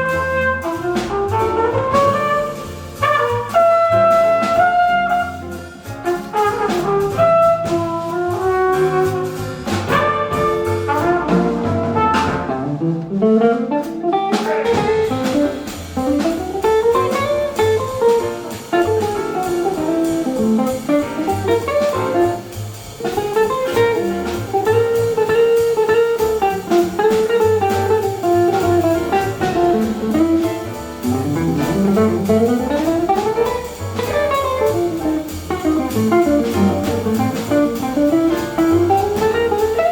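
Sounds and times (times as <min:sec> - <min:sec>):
flugelhorn notes: 0:00.0 - 0:05.6, 0:06.2 - 0:12.4
double bass: 0:00.0 - 0:39.9
drums: 0:00.0 - 0:39.9.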